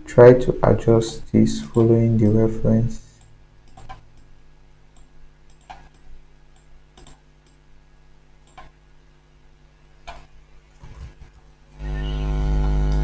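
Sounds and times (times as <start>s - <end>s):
faint electrical hum: 0.0s - 13.0s
computer mouse clicking: 3.2s - 4.3s, 4.9s - 7.6s, 8.4s - 8.8s, 10.0s - 10.3s.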